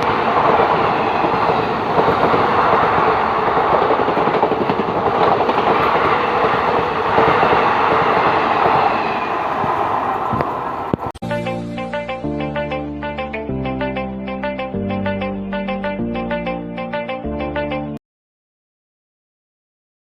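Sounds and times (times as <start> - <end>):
train wheels rattling over track: 0.0 - 11.0
train passing at high speed: 0.0 - 11.1.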